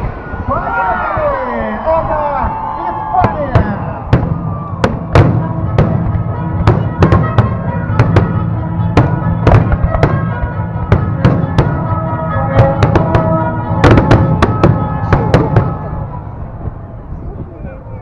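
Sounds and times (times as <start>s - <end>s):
fireworks bangs: 2.5s - 16.8s
music playing: 2.8s - 17.9s.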